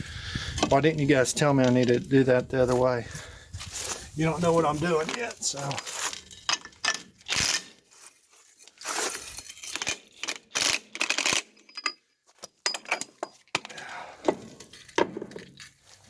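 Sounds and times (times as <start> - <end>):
metal scrapes and clinks: 8.6 - 13.5.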